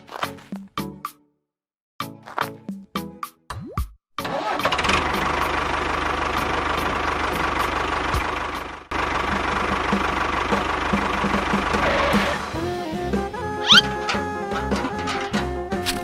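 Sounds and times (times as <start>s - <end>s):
engine chugging steadily: 4.3s - 15.8s.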